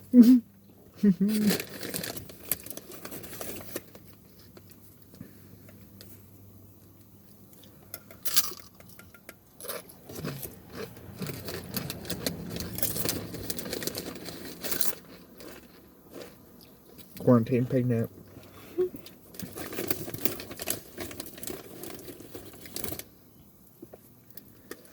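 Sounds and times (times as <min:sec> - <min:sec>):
chips crunching: 0:01.4 - 0:04.8, 0:07.6 - 0:09.0, 0:09.6 - 0:17.2, 0:19.2 - 0:23.1.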